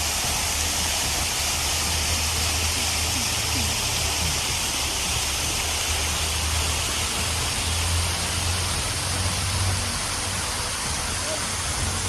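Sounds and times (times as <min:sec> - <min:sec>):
low engine hum: 0:01.9 - 0:12.0
passing vehicles: 0:07.1 - 0:12.0.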